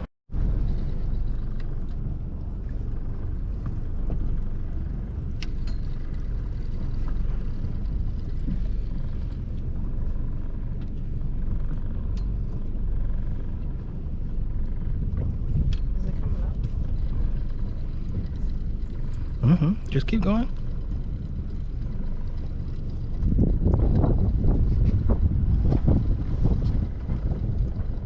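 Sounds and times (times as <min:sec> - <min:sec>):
low rumble aboard boat: 0:00.0 - 0:28.0.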